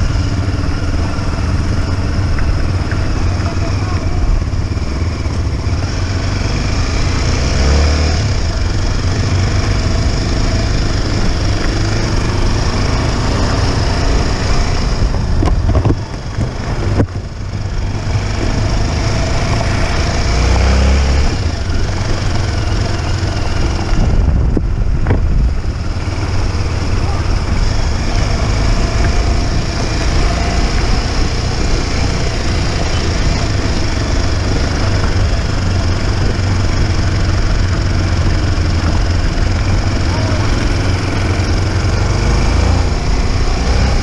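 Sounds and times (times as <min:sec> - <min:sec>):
motorcycle engine revving: 0:00.0 - 0:44.0
wind rumble on microphone: 0:10.3 - 0:20.3, 0:21.0 - 0:40.4.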